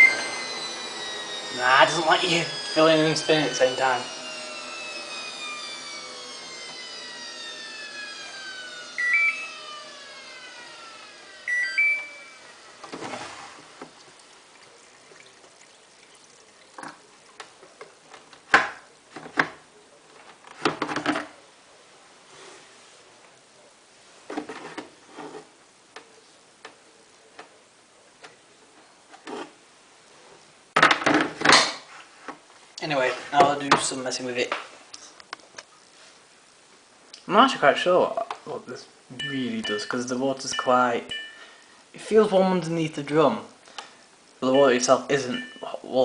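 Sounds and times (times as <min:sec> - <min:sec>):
rising electronic beeps: 0:00.0 - 0:00.5, 0:09.0 - 0:09.6, 0:11.4 - 0:12.8
washing machine motor whine: 0:00.0 - 0:17.8.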